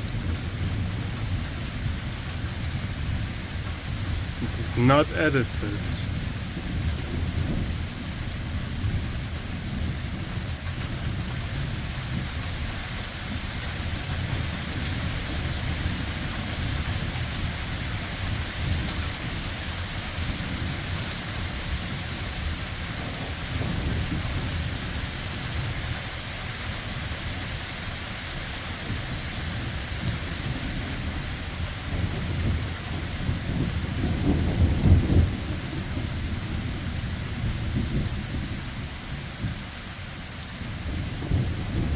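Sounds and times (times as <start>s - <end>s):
heavy rain: 0.0s - 41.9s
rumbling thunder: 6.1s - 12.7s, 18.1s - 24.7s, 28.8s - 38.6s, 40.7s - 41.9s.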